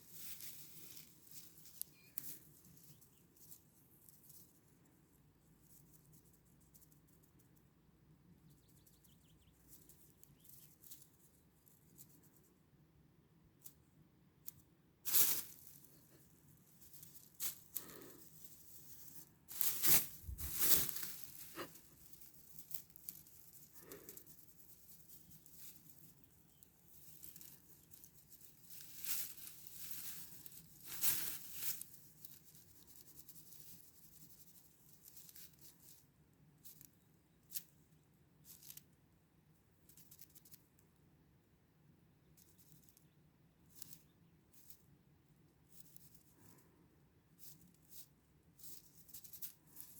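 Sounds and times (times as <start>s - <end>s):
close rustles and scrapes: 0.0s - 5.0s, 14.5s - 36.0s, 47.4s - 49.9s.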